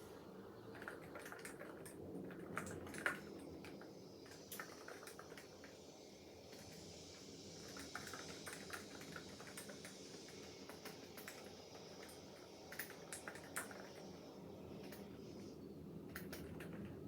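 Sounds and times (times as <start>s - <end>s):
faint steady hum: 0.0s - 17.0s
mechanical keyboard typing: 0.7s - 5.5s, 7.7s - 14.0s, 16.1s - 17.0s.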